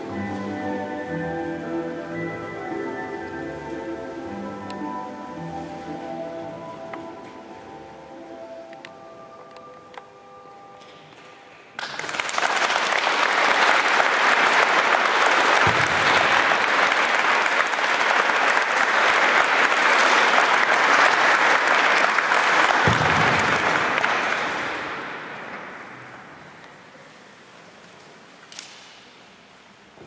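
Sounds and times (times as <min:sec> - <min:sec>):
audience applauding: 0:11.8 - 0:26.2.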